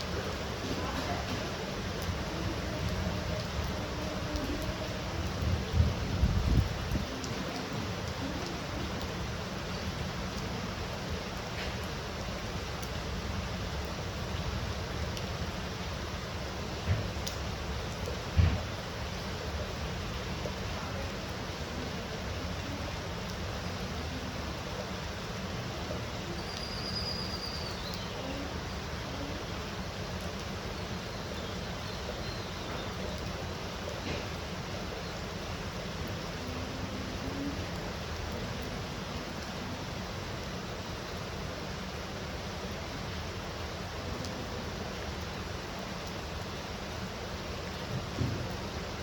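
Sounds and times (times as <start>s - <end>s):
heavy rain: 0.0s - 49.0s
faint high whistle: 26.5s - 27.9s.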